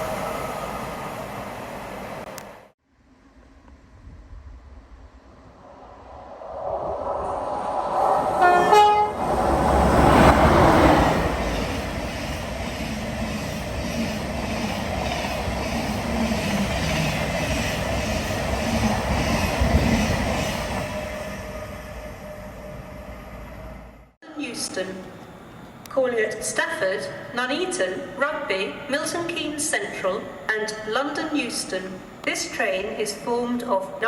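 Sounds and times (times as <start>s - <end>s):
train wheels rattling on rails: 8.2s - 22.6s
train horn: 8.4s - 9.4s.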